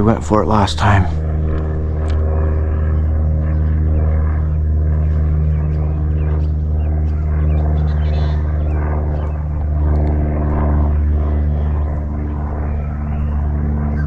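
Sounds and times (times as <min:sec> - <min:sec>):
motor droning: 0:00.0 - 0:14.0.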